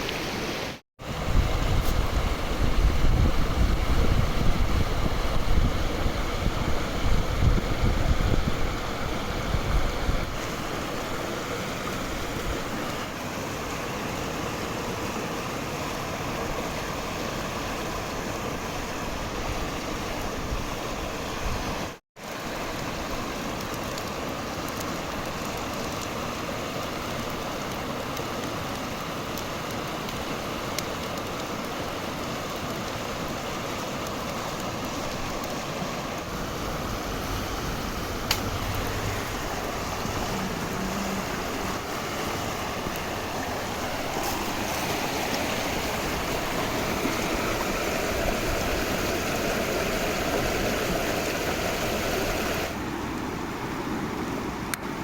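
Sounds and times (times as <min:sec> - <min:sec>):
wind buffeting microphone: 0:01.0 - 0:10.4, 0:36.3 - 0:44.7
steady rushing hiss: 0:22.4 - 0:53.7.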